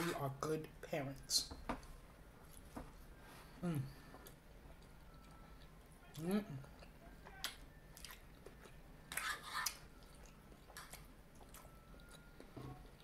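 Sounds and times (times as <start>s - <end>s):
chewing food: 4.0s - 13.0s.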